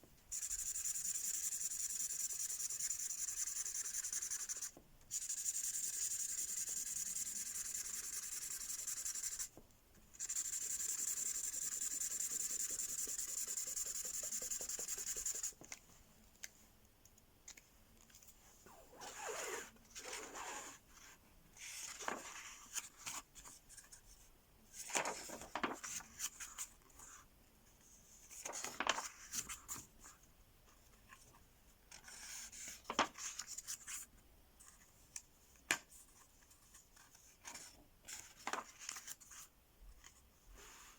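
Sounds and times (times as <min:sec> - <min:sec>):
pen scratching strokes and rubs: 0:00.3 - 0:09.5, 0:10.2 - 0:15.6
pen scribbling on paper: 0:00.4 - 0:09.5, 0:10.2 - 0:15.5.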